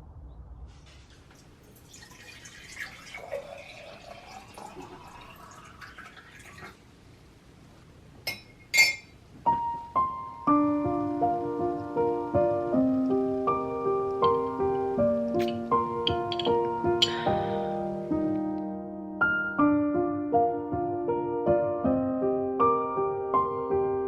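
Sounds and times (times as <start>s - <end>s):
gentle piano music: 8.2s - 24.0s.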